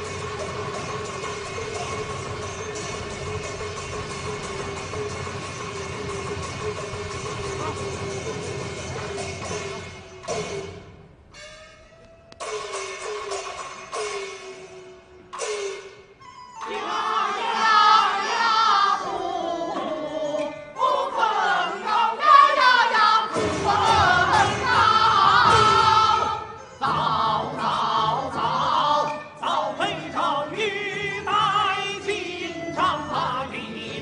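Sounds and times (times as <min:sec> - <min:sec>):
opera chorus singing: 0:16.6 - 0:34.0.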